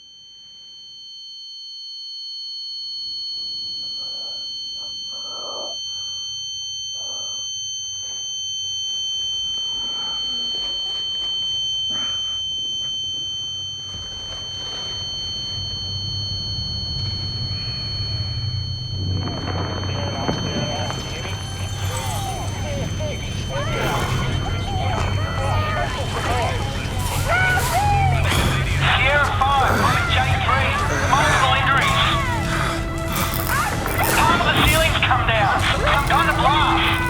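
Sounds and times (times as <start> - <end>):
high-pitched ringing tone: 0.0 - 37.0
low rumble: 14.6 - 37.0
muffled noises: 19.0 - 37.0.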